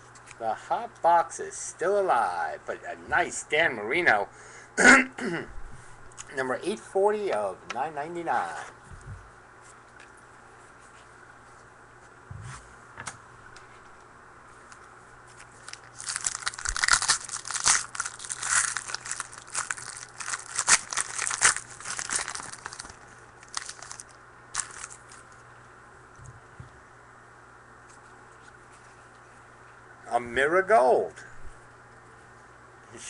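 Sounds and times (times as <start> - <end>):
wrapper crackling torn open: 15.3 - 25.3.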